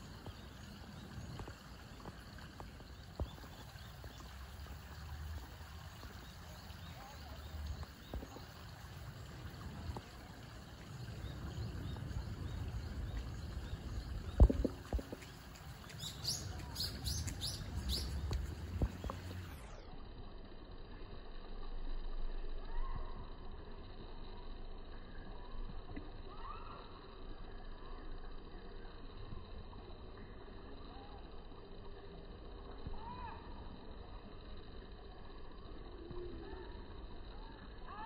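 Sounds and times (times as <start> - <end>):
low rumble: 7.6 - 19.9.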